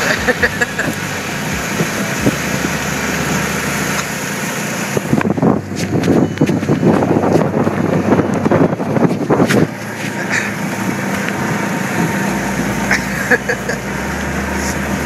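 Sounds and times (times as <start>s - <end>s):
golf cart running: 0.0s - 15.0s.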